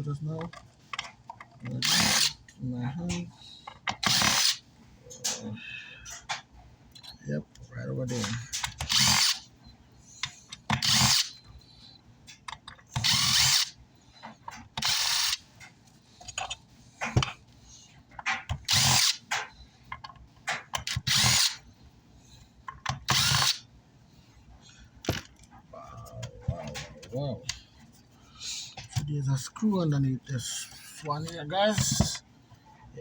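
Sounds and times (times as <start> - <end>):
power screwdriver running: 1.7 - 2.4, 4.0 - 4.6, 8.8 - 9.4, 10.7 - 11.4, 13.0 - 13.7, 14.8 - 15.4, 18.6 - 19.2, 20.8 - 21.6, 23.0 - 23.6.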